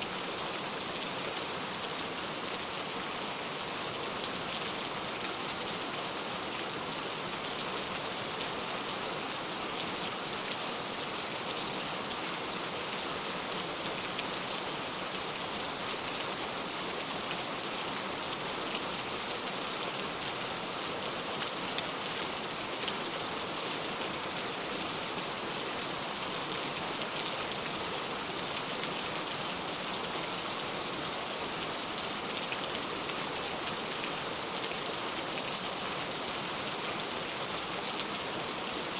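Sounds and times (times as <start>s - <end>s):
rain falling on ground: 0.0s - 38.9s.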